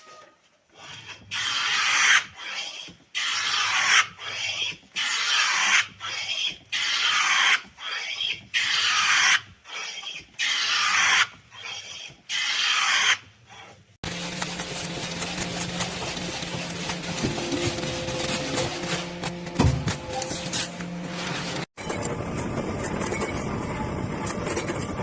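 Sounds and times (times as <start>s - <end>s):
hand tool rasping and scraping: 13.5s - 21.8s
machine hum: 14.0s - 24.5s.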